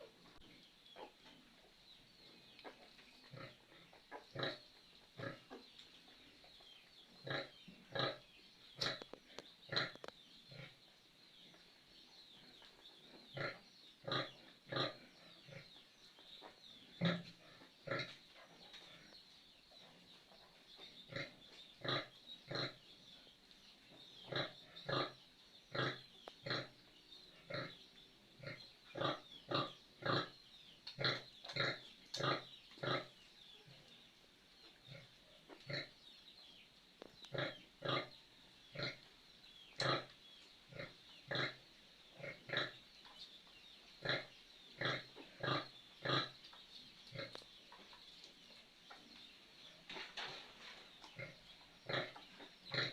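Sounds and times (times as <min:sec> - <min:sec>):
pigs grunting: 0:03.3 - 0:04.6, 0:07.2 - 0:09.1, 0:09.7 - 0:10.8, 0:13.3 - 0:15.7, 0:17.0 - 0:18.2, 0:21.1 - 0:22.8, 0:24.3 - 0:26.8, 0:27.4 - 0:27.8, 0:28.4 - 0:30.4, 0:31.0 - 0:33.2, 0:37.3 - 0:39.0, 0:40.7 - 0:41.6, 0:42.2 - 0:42.8, 0:44.0 - 0:46.4, 0:51.2 - 0:52.9.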